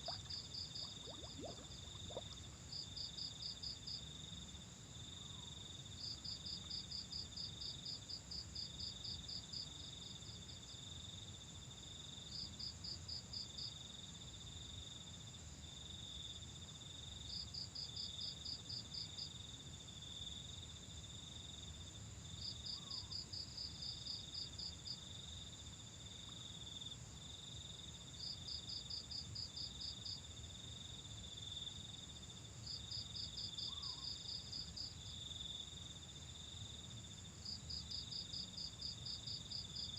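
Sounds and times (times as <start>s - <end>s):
faint low rumble: 0.0s - 2.7s
rapid insect chirping: 0.0s - 11.4s, 12.0s - 39.9s
insects trilling: 33.4s - 34.9s.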